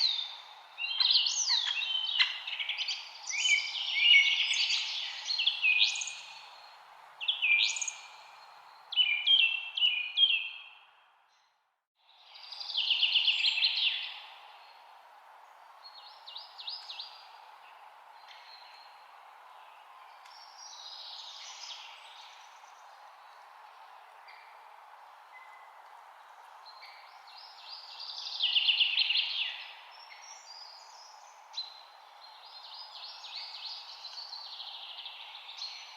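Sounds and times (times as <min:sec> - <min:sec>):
songbirds chirping and singing: 0:00.0 - 0:10.9.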